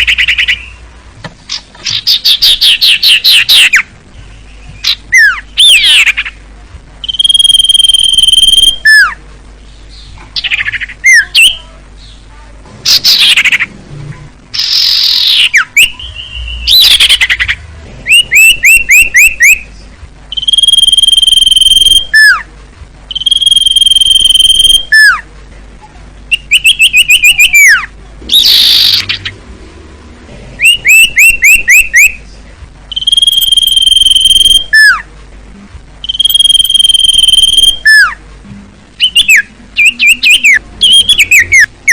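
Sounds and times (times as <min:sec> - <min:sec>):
bird whistling song: 0:00.0 - 0:00.8, 0:01.5 - 0:06.4, 0:07.0 - 0:09.2, 0:09.9 - 0:12.2, 0:12.9 - 0:13.7, 0:14.6 - 0:22.5, 0:23.1 - 0:25.2, 0:26.3 - 0:29.3, 0:30.6 - 0:32.2, 0:32.9 - 0:35.1, 0:36.0 - 0:38.2, 0:39.0 - 0:41.9
harsh sweeping bird calls: 0:00.0 - 0:00.8, 0:01.4 - 0:06.4, 0:07.0 - 0:13.7, 0:14.5 - 0:22.5, 0:23.1 - 0:25.3, 0:26.3 - 0:29.5, 0:30.6 - 0:32.2, 0:32.9 - 0:35.1, 0:36.0 - 0:38.2, 0:39.0 - 0:41.9.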